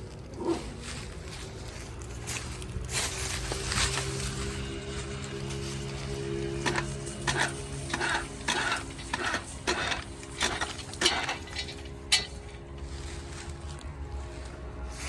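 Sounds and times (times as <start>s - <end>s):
metal clinking and scraping: 2.4s - 13.8s.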